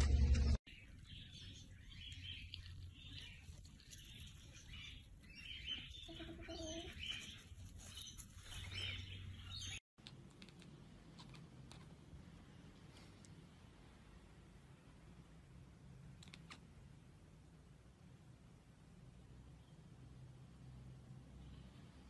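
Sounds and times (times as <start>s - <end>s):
brief low hum: 0.0s - 0.6s
small birds chirping: 0.7s - 9.8s.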